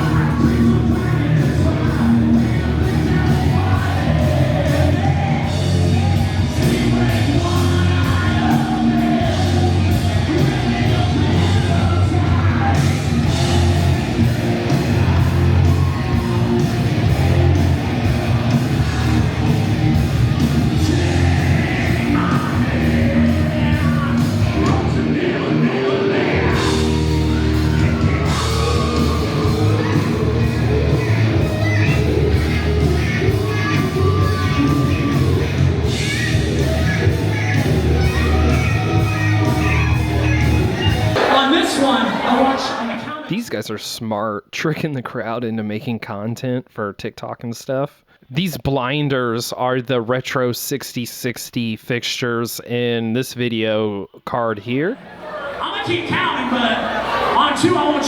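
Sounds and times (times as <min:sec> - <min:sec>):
rock band playing live: 0:00.0 - 0:43.0
lead singer vocals: 0:20.7 - 0:31.8.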